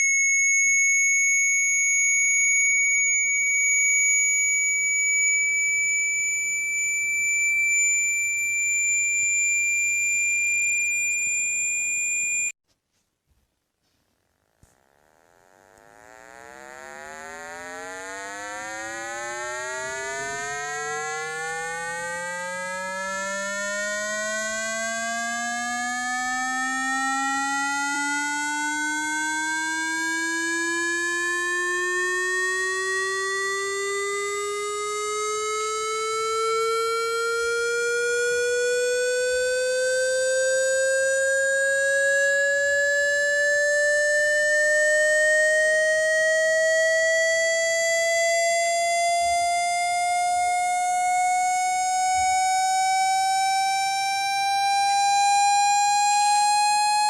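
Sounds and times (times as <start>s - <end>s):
buzzy synthetic tone rising in pitch: 15.0s - 22.6s.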